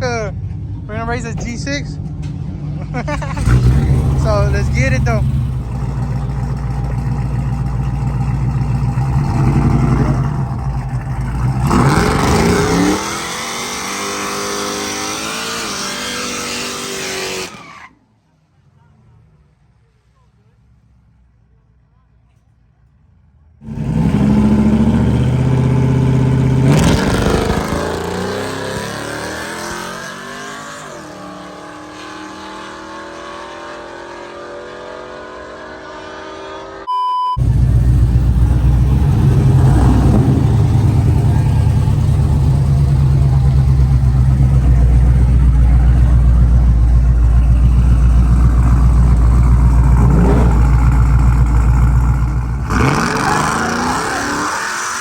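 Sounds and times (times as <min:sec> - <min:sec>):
low engine rumble: 0:00.0 - 0:12.0, 0:37.4 - 0:52.7
car accelerating hard: 0:03.0 - 0:17.8, 0:23.6 - 0:55.0
brief beep: 0:36.9 - 0:37.4.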